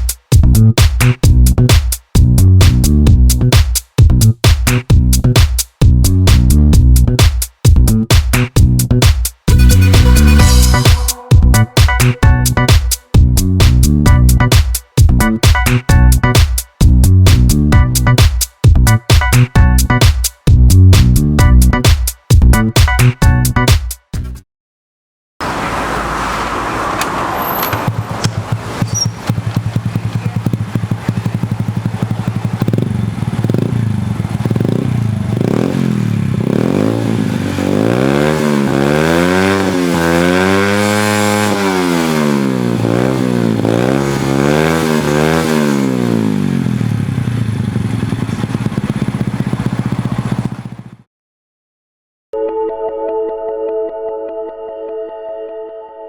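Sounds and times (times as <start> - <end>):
motorcycle engine idling and revving: 0.3 - 19.0, 25.4 - 51.1.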